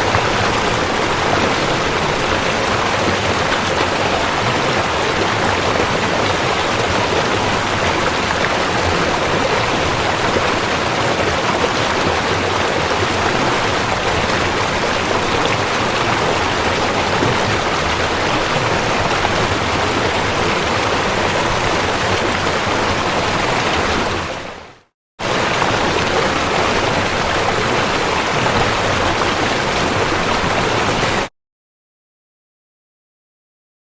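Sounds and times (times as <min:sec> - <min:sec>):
river water flowing: 0:00.0 - 0:31.3.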